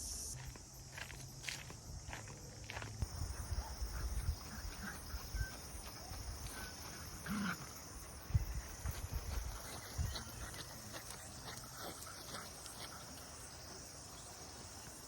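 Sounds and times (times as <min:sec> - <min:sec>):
steady high hiss: 0:00.0 - 0:00.6.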